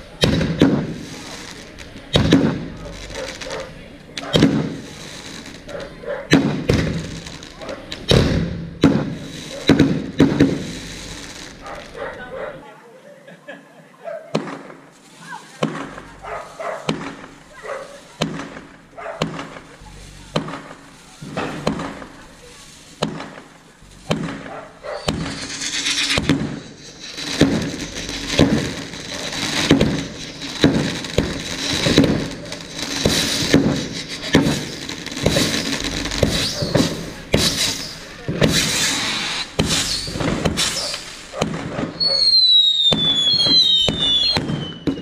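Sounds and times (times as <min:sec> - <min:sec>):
fireworks bangs and cracks: 0:00.0 - 0:12.6, 0:14.3 - 0:45.0
hissing crackle with high tone: 0:10.5 - 0:12.0, 0:15.0 - 0:44.3.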